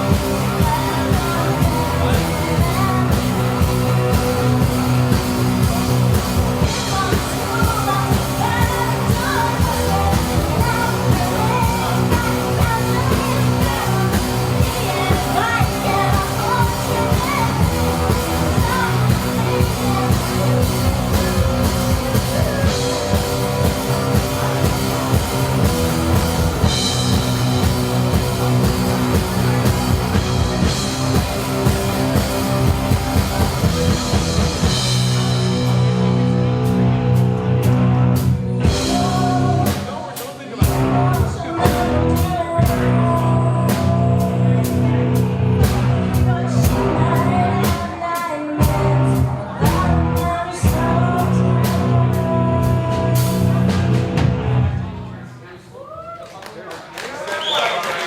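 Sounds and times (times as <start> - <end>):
person singing: 0.0 - 24.9, 38.2 - 54.3
drum kit: 0.0 - 55.2
electric guitars: 0.0 - 55.3
bass guitar: 0.0 - 55.4.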